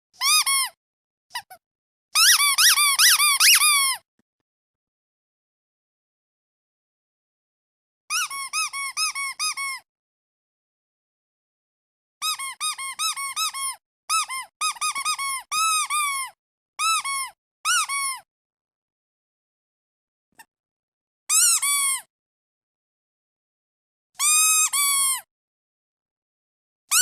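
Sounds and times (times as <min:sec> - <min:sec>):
rubber duck squeaking: 0:00.2 - 0:01.6, 0:02.2 - 0:04.0, 0:08.1 - 0:09.8, 0:12.2 - 0:18.2, 0:21.3 - 0:22.1, 0:24.2 - 0:25.3.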